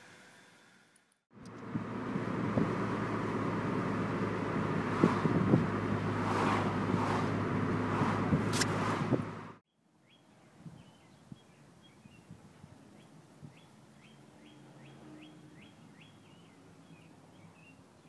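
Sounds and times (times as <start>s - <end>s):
car road and wind noise: 1.3s - 9.6s
songbird chirping: 9.7s - 18.0s.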